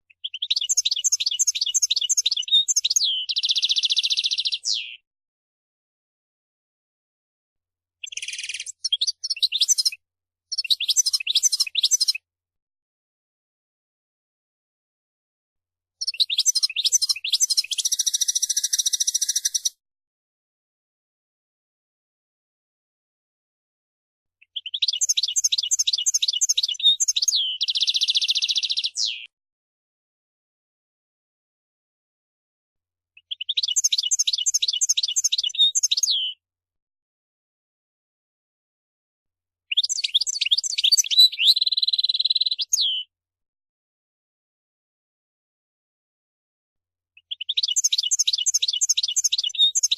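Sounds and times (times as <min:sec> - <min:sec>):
finch singing: 0:00.1 - 0:05.0, 0:08.0 - 0:12.2, 0:16.0 - 0:19.7, 0:24.5 - 0:29.3, 0:33.2 - 0:36.4, 0:39.7 - 0:43.1, 0:47.2 - 0:49.9.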